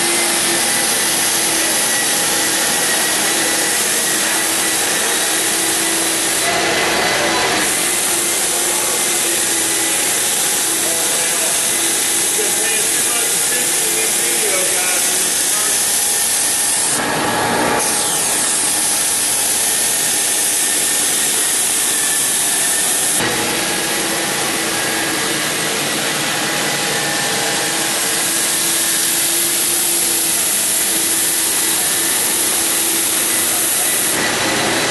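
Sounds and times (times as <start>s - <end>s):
floor sander running: 0.0s - 34.9s.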